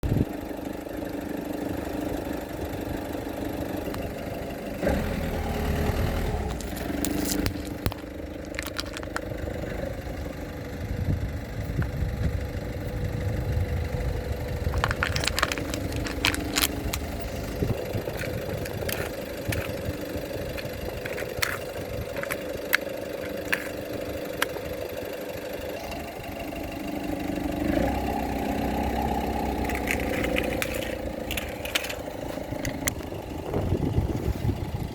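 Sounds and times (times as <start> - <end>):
car engine running: 0.0 - 34.9
tyres crushing objects: 6.5 - 9.4, 14.7 - 23.8, 29.6 - 32.0.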